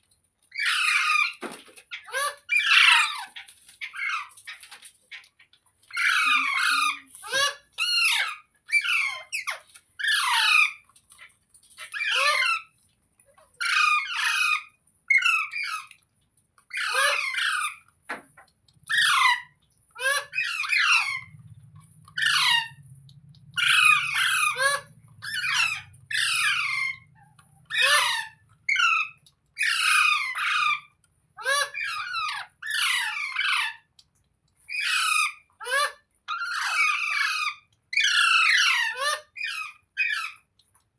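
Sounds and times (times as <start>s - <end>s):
parrot squawking: 0.5s - 5.3s, 5.9s - 10.8s, 11.8s - 12.8s, 13.6s - 15.9s, 16.7s - 17.9s, 18.8s - 22.8s, 23.5s - 33.9s, 34.7s - 40.5s.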